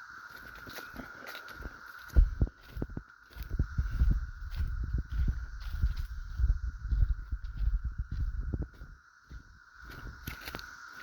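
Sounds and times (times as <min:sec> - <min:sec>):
cicada chorus drone: 0:00.0 - 0:11.0
footsteps thudding: 0:02.1 - 0:10.2.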